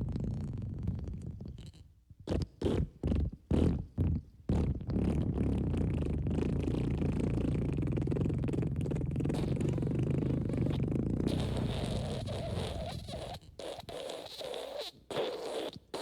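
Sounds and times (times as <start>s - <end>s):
fart sound effects: 9.4s - 16.0s.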